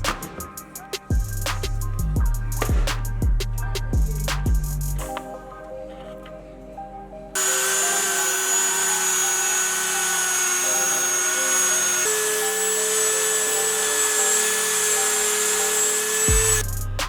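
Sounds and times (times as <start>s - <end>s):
rotary tool whine: 7.4s - 16.6s.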